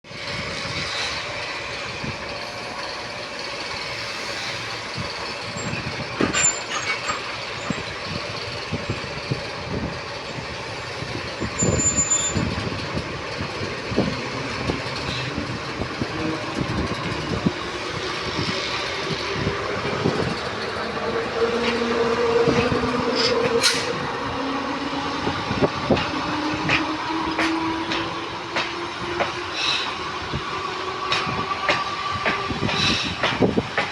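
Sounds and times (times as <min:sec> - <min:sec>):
diesel locomotive engine running: 0:00.1 - 0:33.9
wheels clicking on rails: 0:00.2 - 0:24.4.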